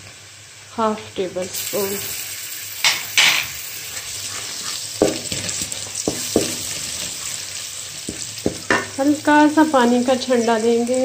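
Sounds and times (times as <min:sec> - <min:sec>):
paste sizzling in hot oil: 0:01.4 - 0:11.0
spoon knocking metal pot: 0:05.0 - 0:05.4, 0:06.1 - 0:06.7, 0:08.1 - 0:08.9.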